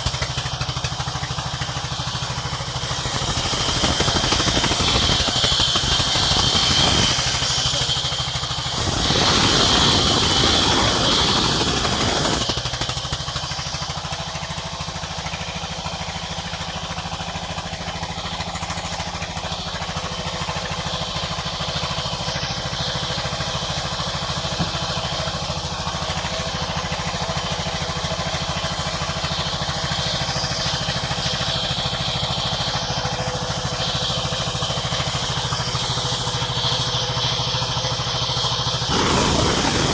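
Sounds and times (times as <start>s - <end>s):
sawmill machinery droning: 0.0s - 39.9s
saw cutting through log: 2.2s - 14.0s, 38.8s - 39.9s.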